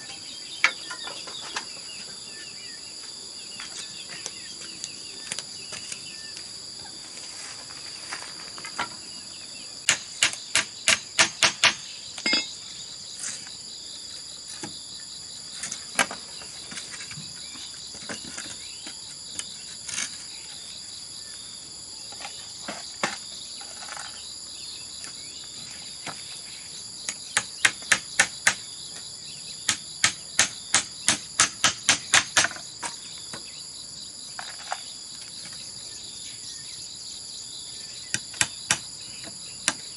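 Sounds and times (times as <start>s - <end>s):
crickets chirping: 0.0s - 39.9s
tool striking bamboo: 9.8s - 12.6s, 27.1s - 28.7s, 29.7s - 33.0s, 38.1s - 38.9s.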